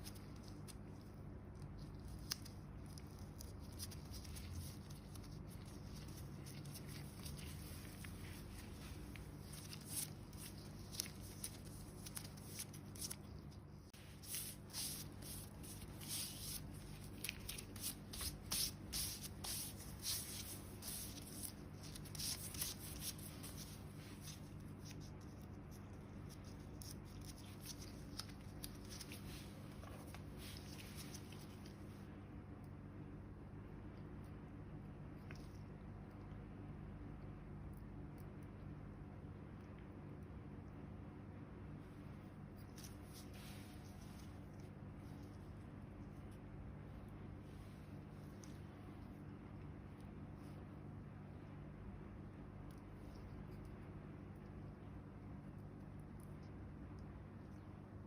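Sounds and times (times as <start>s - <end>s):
steady low hum: 0.0s - 58.0s
foot skin being scraped: 2.0s - 25.0s.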